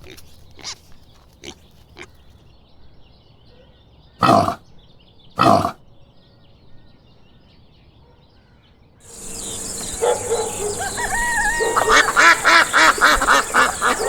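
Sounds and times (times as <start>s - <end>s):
pig grunting: 4.2s - 4.7s, 5.4s - 5.8s.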